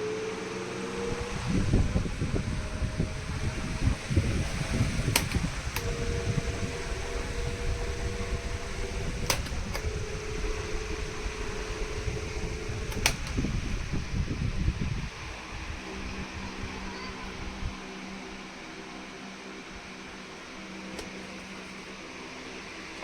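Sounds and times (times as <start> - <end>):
electric fan whirring: 0.0 - 23.0
fan switch clicks: 1.0 - 14.5, 20.8 - 21.8.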